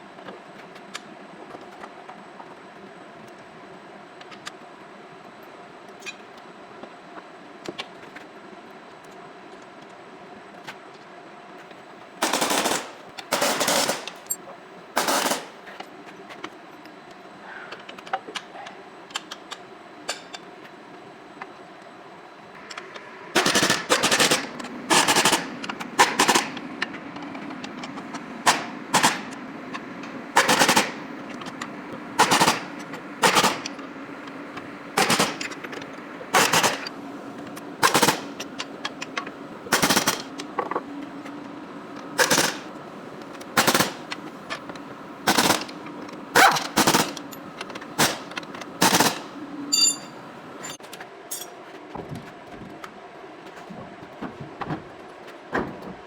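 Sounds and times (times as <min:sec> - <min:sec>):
steady mechanical hum: 0:00.0 - 0:56.0
pneumatic impact wrench rattling: 0:12.2 - 0:14.4, 0:15.0 - 0:15.8, 0:23.4 - 0:33.8, 0:34.9 - 0:36.9, 0:37.8 - 0:40.4, 0:42.2 - 0:42.7, 0:43.3 - 0:51.5.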